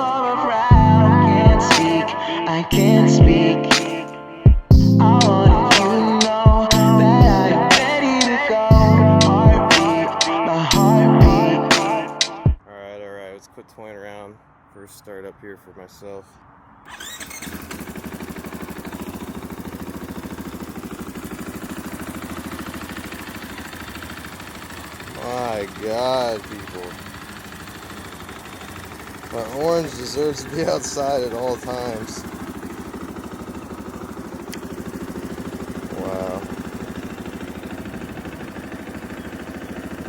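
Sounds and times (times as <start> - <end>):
motorcycle engine idling: 0.0 - 2.0, 4.6 - 10.2, 16.9 - 40.0.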